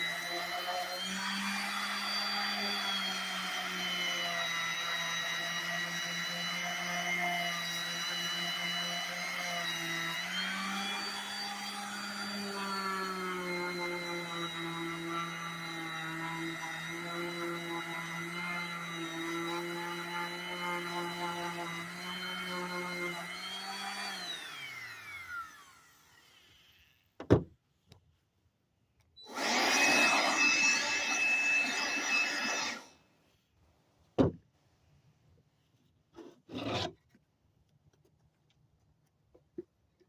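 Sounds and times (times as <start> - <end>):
power tool working on wood: 0.0 - 27.0, 29.2 - 33.0
power tool whining: 0.0 - 27.2, 29.2 - 33.0.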